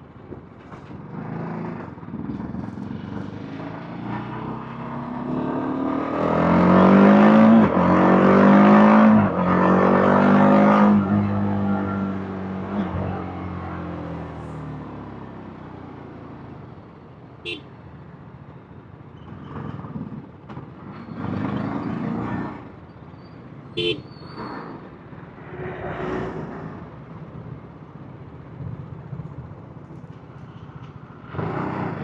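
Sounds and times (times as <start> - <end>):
short horn beeps: 17.5 - 17.7, 23.8 - 24.1.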